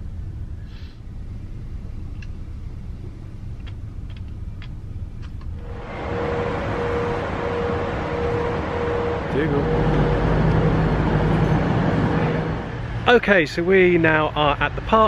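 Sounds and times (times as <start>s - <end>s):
steady hum: 0.0s - 15.0s
train rumble inside cabin: 0.0s - 15.0s.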